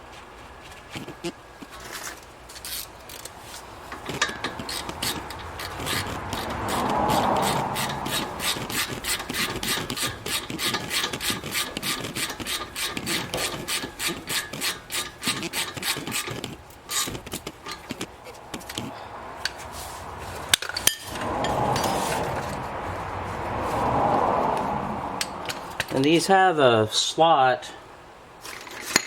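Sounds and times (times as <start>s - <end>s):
hand tool rasping: 1.0s - 22.6s.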